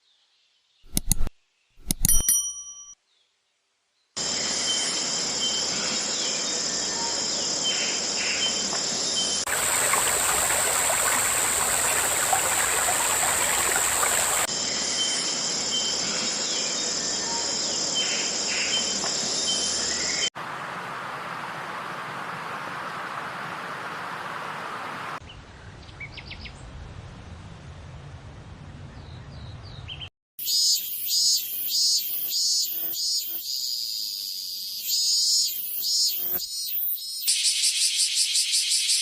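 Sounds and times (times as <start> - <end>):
insects trilling: 4.2 - 20.2, 30.4 - 39.0
harsh insect buzz: 30.4 - 37.7.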